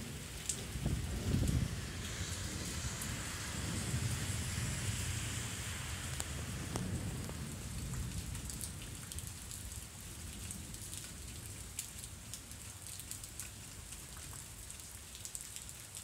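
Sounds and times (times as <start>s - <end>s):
low thunder rumble: 0.0s - 10.9s
rain drops ticking on surfaces: 0.0s - 16.0s.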